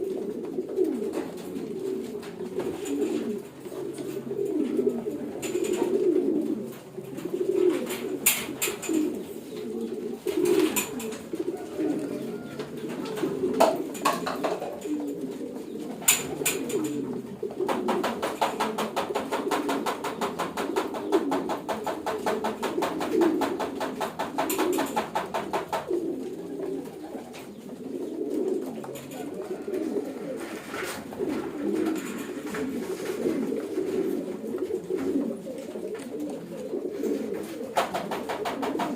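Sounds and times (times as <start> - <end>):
pigeons cooing: 0.0 - 38.9.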